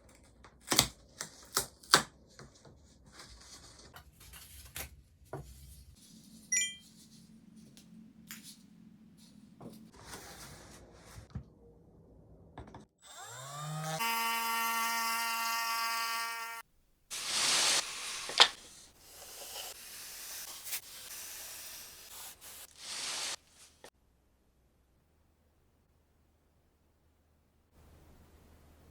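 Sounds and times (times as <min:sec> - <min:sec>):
electric router motor whine: 0:13.0 - 0:16.6
soft rustling noise: 0:22.6 - 0:23.9.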